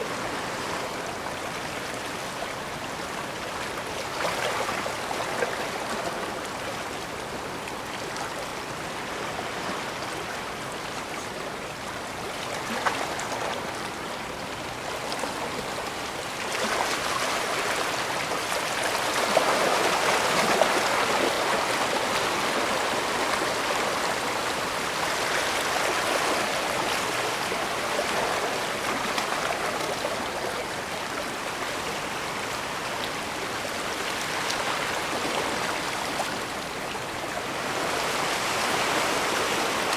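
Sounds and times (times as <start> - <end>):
water washing against shore: 14.8 - 39.9.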